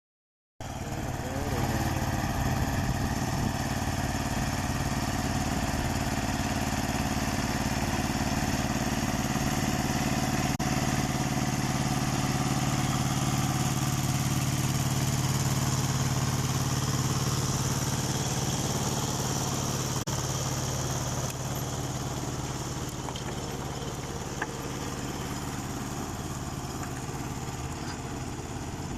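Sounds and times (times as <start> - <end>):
rotary tiller in soil: 0.6 - 28.9
tractor diesel engine running: 0.6 - 28.9.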